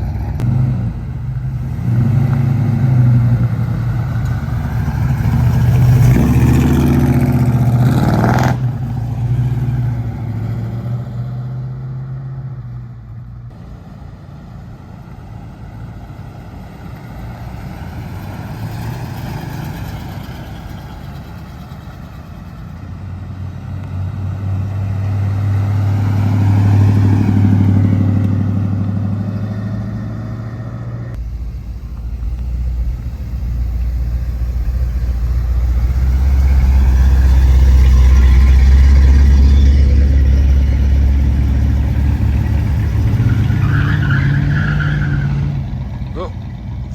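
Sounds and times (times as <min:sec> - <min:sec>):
loud car engine: 0:00.0 - 0:46.9
car passing by: 0:13.6 - 0:45.8
deep engine idling: 0:31.1 - 0:42.8.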